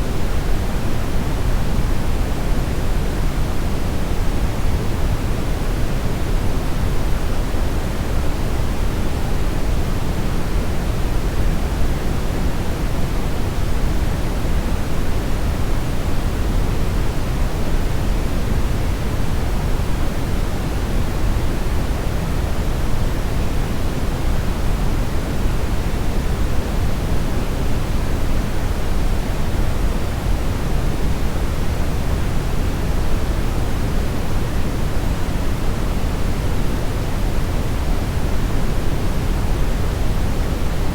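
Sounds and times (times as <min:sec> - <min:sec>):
brown noise hiss: 0:00.0 - 0:40.9.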